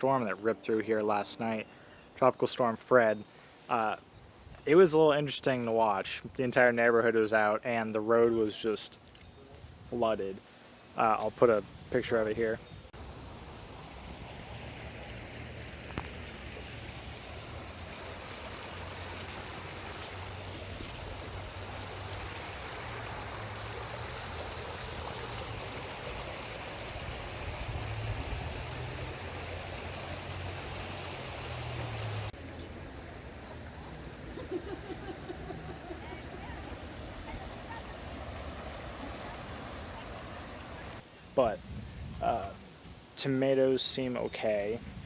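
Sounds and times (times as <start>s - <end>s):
floodwater rushing: 13.0s - 41.0s.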